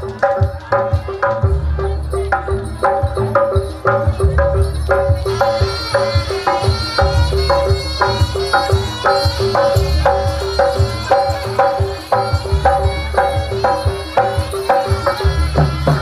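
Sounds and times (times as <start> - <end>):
gamelan drums: 0.0 - 16.0.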